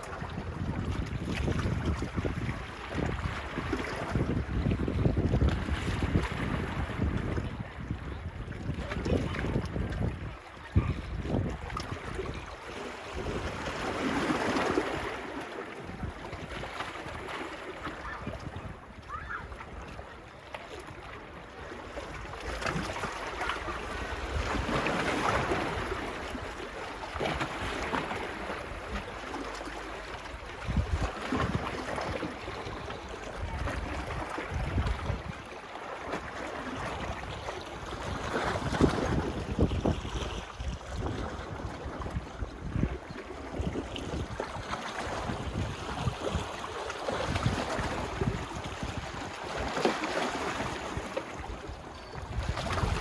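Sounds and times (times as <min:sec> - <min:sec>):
wind buffeting microphone: 0:00.0 - 0:15.2, 0:30.4 - 0:35.5, 0:36.8 - 0:53.0.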